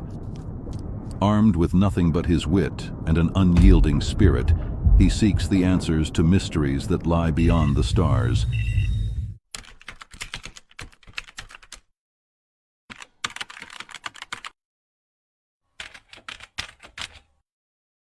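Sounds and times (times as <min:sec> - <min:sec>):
computer keyboard typing: 0:09.6 - 0:11.9, 0:12.9 - 0:14.6, 0:15.8 - 0:17.3.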